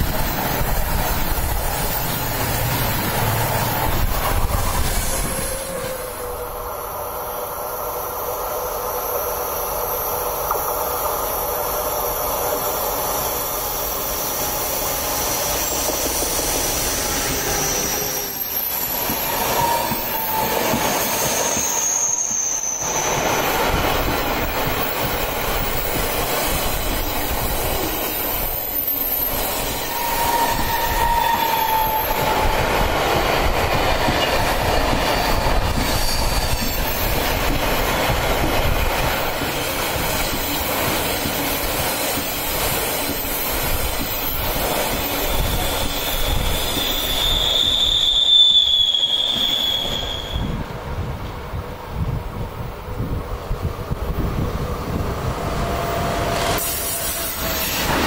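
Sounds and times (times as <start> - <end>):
high wheel squeal: 13.2 - 23.6, 28.0 - 32.5, 34.2 - 37.1, 45.0 - 50.6.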